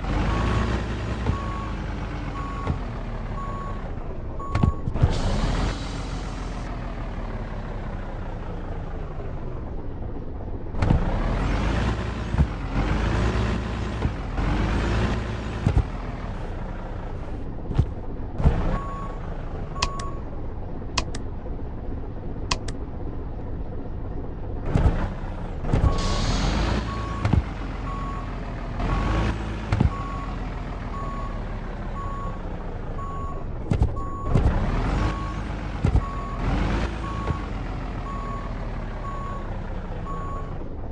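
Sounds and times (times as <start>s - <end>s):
truck engine revving: 0.0s - 9.8s, 10.7s - 20.1s, 24.6s - 40.9s
sharp clicks: 21.0s - 21.3s, 22.5s - 22.8s.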